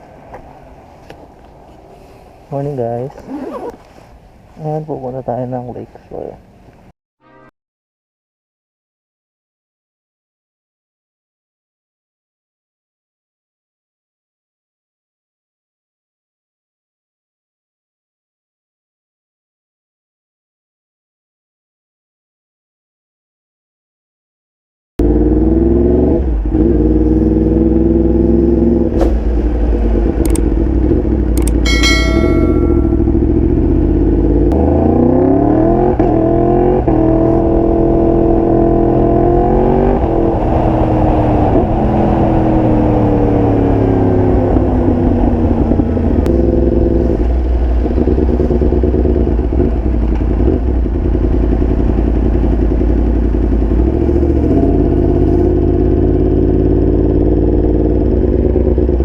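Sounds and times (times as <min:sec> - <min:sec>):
brief high-pitched tone: 0:07.2 - 0:07.5, 0:31.5 - 0:33.6
motorcycle engine shifting gears: 0:25.0 - 0:59.0.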